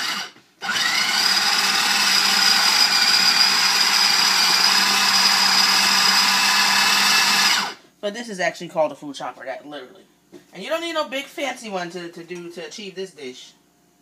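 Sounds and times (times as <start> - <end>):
electric food chopper whining: 0.0 - 7.8.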